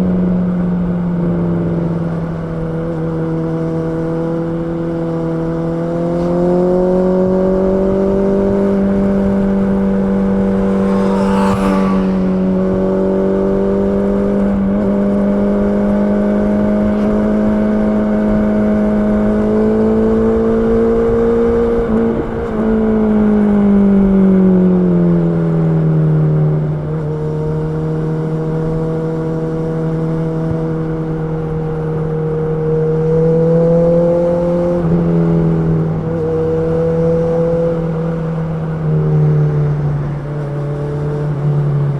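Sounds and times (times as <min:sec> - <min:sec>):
motorcycle engine running: 0:00.0 - 0:22.4.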